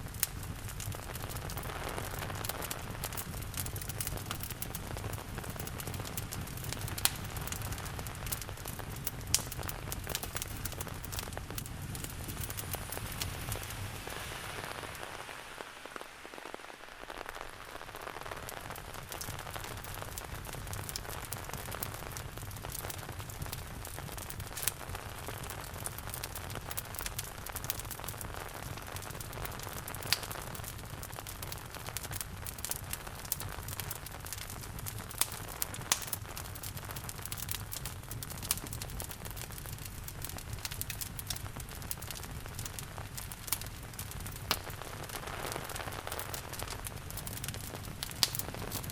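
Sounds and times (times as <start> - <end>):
wood fire crackling and popping: 0.0 - 48.9
rain falling: 0.6 - 25.2.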